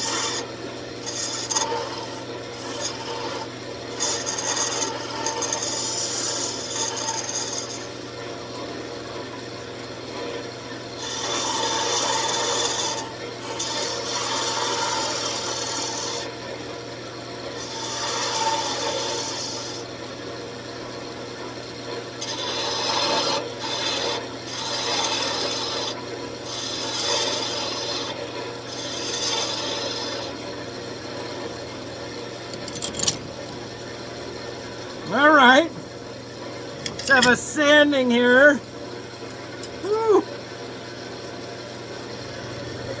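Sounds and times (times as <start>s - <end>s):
lathe motor hum: 0.0s - 7.9s
lathe tool scraping wood: 0.0s - 8.0s, 11.0s - 16.4s, 17.6s - 19.8s, 22.2s - 30.6s, 32.4s - 33.9s.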